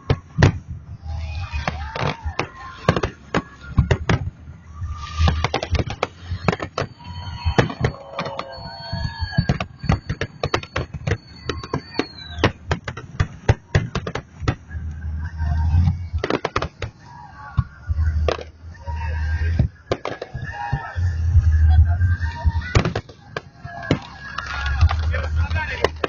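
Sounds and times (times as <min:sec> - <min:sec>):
firework crackling bangs: 0:04.9 - 0:14.7, 0:16.1 - 0:17.0, 0:19.8 - 0:20.8, 0:22.7 - 0:26.0
thin high whistle: 0:06.2 - 0:12.4.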